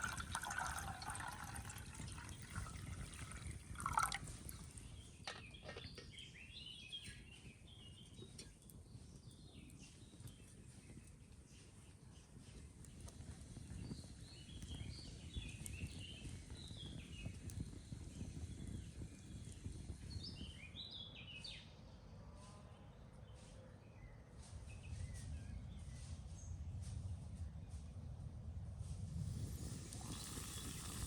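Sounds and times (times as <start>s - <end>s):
small birds chirping: 0.0s - 21.7s.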